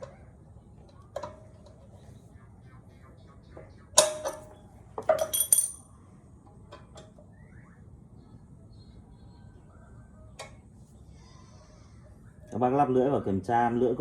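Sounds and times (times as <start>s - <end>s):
bright ringing metal clinks: 5.1s - 5.9s.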